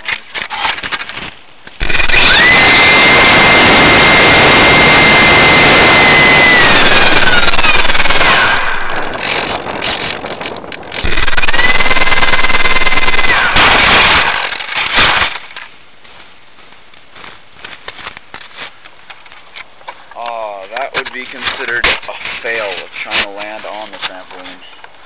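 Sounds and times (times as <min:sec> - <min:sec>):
model plane motor whine: 0:01.8 - 0:09.2, 0:11.0 - 0:14.2
wind rush: 0:01.8 - 0:15.1.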